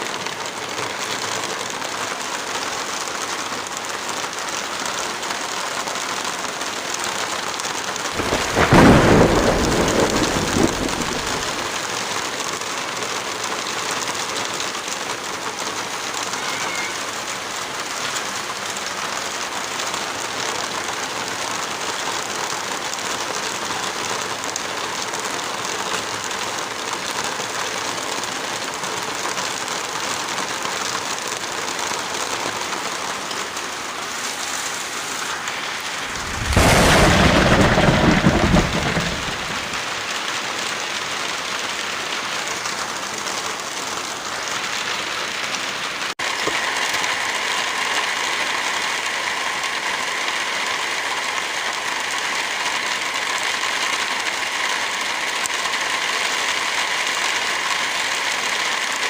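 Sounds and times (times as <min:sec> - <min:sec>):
heavy rain falling: 0:00.0 - 0:59.0
deep thunder rumble: 0:08.2 - 0:11.8, 0:35.8 - 0:40.1.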